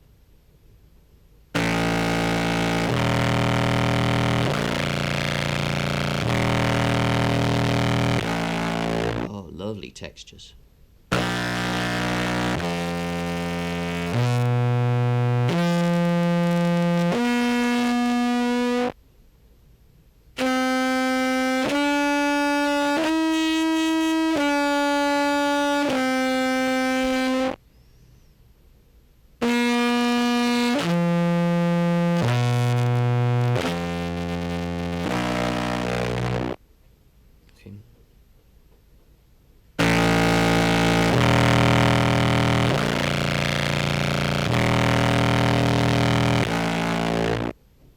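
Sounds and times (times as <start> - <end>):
processed buzzy clarinet notes: 1.6 - 9.3, 11.1 - 19.0, 20.4 - 27.6, 29.4 - 36.6, 39.8 - 47.6.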